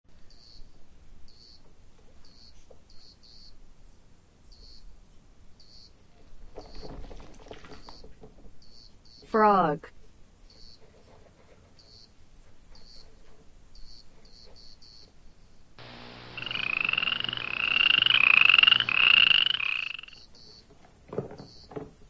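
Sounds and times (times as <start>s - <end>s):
frog calling: 15.8s - 20.3s.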